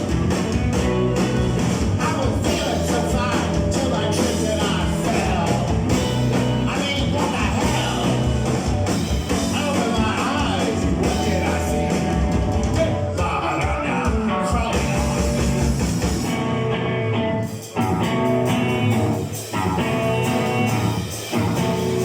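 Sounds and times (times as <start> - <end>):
live rock band: 0.0 - 22.0
person singing: 6.5 - 8.4, 9.4 - 15.1.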